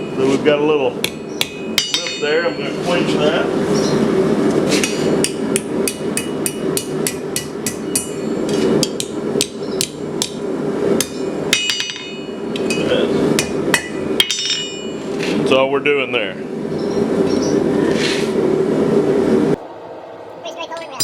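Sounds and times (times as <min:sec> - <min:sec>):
hammer striking steel on anvil: 0:01.0 - 0:02.2, 0:05.2 - 0:08.2.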